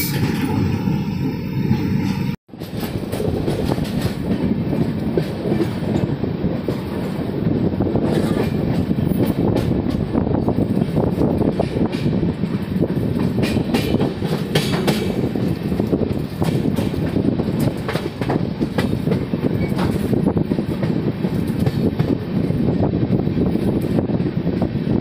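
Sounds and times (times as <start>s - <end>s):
train rumble: 0.0s - 25.0s
wheels clacking over rails: 8.0s - 22.2s.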